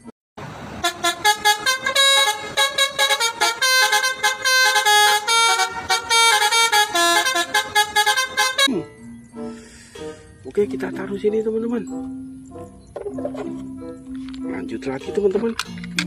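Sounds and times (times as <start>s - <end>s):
musical truck horn: 0.5s - 11.0s.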